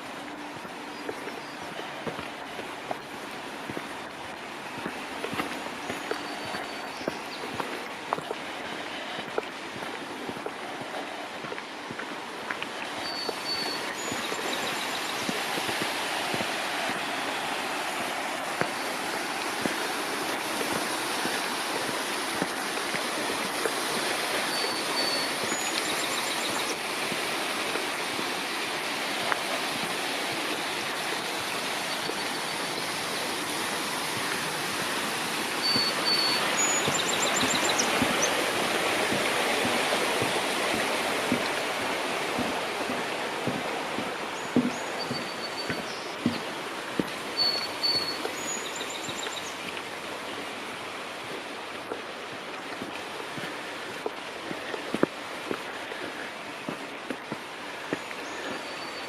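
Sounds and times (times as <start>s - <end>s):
birds chirping: 0.0s - 10.0s, 12.9s - 22.5s, 23.4s - 27.8s, 29.2s - 49.8s, 57.6s - 59.0s
mountain stream rushing: 0.0s - 59.0s.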